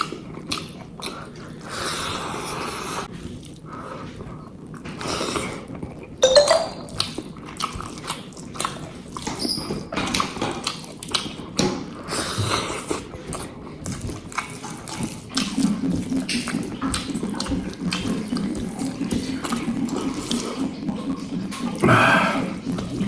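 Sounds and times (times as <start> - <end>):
chewing with wet mouth clicks: 10.1 - 11.4.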